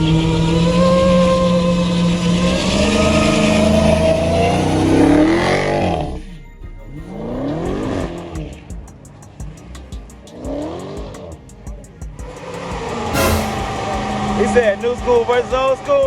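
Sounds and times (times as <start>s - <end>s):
car engine at high revs: 0.0s - 6.2s, 7.2s - 8.7s, 9.3s - 11.4s, 12.2s - 16.0s
tire squeal: 0.0s - 6.2s, 12.3s - 16.0s.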